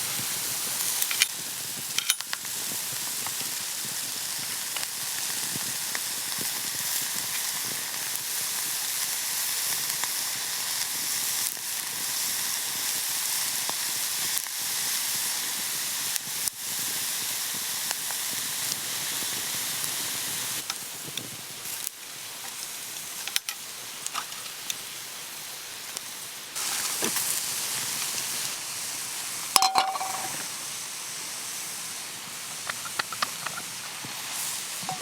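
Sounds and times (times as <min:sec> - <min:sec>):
food sizzling on a griddle: 0:00.0 - 0:35.0
sharp metallic clink: 0:29.6 - 0:30.4.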